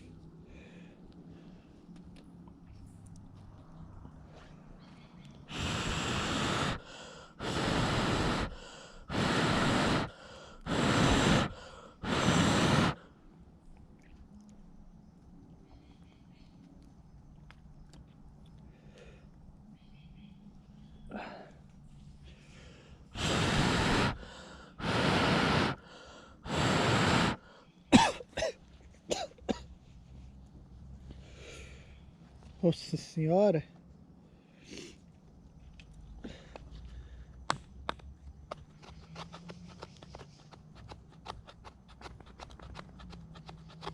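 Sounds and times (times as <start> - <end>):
person breathing: 0.0 - 1.8, 5.5 - 13.2, 21.1 - 27.9, 31.1 - 32.2, 36.2 - 37.4
person blowing on embers: 5.5 - 13.1, 23.1 - 27.5
man coughing: 27.9 - 29.7.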